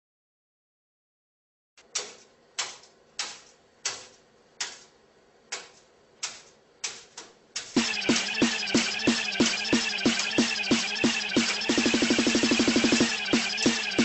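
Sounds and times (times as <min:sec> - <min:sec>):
electronic music with strong beat: 0:07.8 - 0:14.0.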